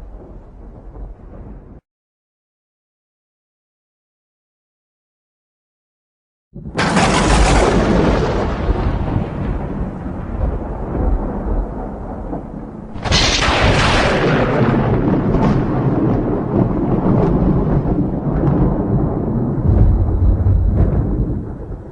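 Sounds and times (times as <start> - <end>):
thunder crack: 0.0 - 1.8, 6.6 - 21.9
thunder rumbling: 0.0 - 1.8, 6.6 - 21.9.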